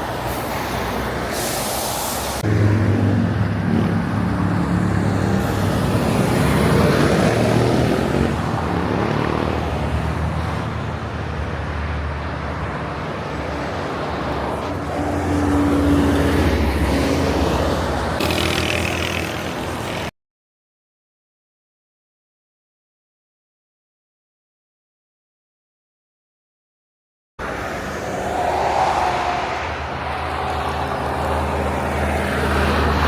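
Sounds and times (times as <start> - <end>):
road noise: 0.0 - 20.2, 27.4 - 33.0.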